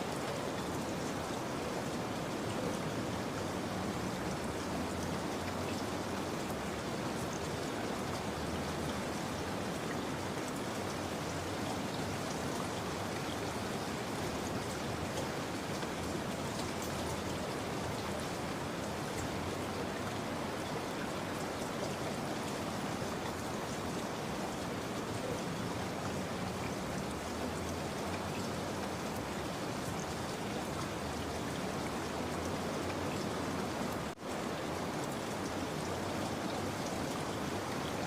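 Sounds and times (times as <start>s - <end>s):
rain falling: 0.0s - 38.0s.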